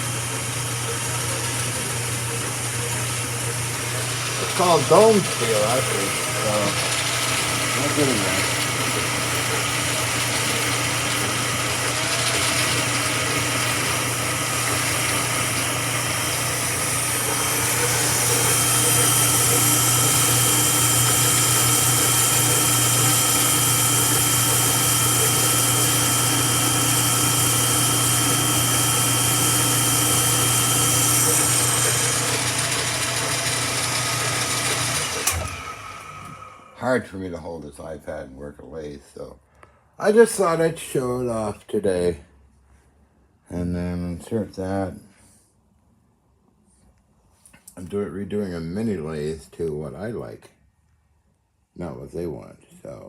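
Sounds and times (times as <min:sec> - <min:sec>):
metal lathe motor whining: 0:00.0 - 0:36.7.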